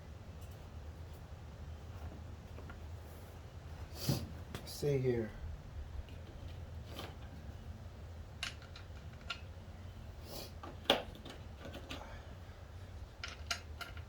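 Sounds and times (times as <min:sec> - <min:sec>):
steady low hum: 0:00.0 - 0:14.0
light clicks and taps of tools: 0:13.2 - 0:14.0.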